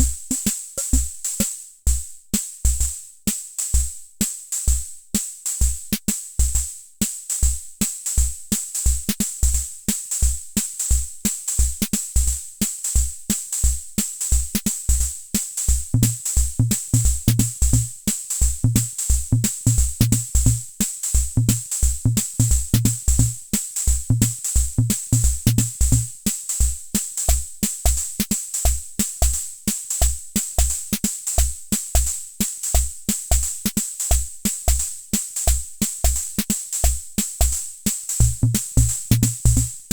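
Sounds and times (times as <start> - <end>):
low kick drum thumps: 0.0 - 1.1, 18.6 - 20.7, 21.4 - 23.4, 24.0 - 26.2, 38.2 - 39.9
lower pitched drum pattern: 0.0 - 1.5, 15.7 - 39.9
rhythm machine beat: 0.0 - 1.5, 16.0 - 18.0, 18.6 - 20.7, 21.4 - 26.2, 32.7 - 39.9.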